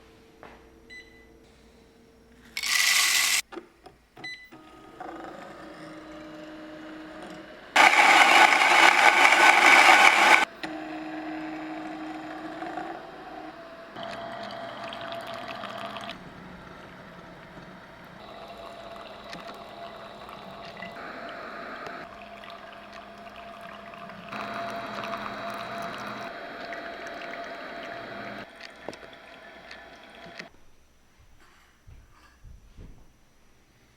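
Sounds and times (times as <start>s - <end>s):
coffee grinder grinding: 2.6s - 3.4s, 7.8s - 10.5s
water pouring: 2.6s - 3.4s
machine humming: 7.8s - 10.5s.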